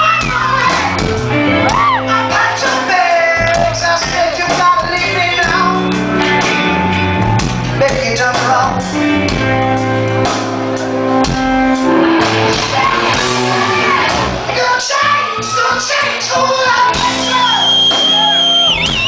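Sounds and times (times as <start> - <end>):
person singing: 0.0 - 6.5, 12.2 - 18.2
rock band playing live: 0.0 - 19.0.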